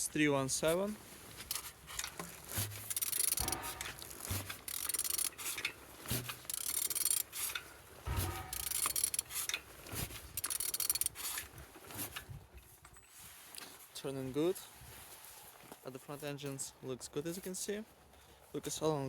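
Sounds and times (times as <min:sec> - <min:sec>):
engine turned over by hand: 0:01.4 - 0:12.4.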